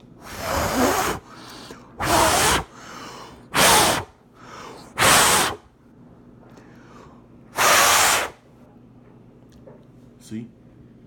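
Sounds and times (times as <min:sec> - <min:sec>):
person blowing hard: 0:00.2 - 0:04.1, 0:04.7 - 0:05.7, 0:07.6 - 0:08.4.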